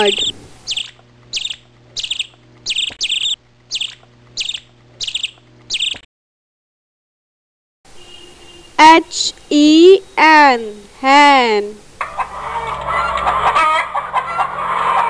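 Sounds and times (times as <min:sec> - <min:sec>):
bird chirping: 0:00.0 - 0:06.1.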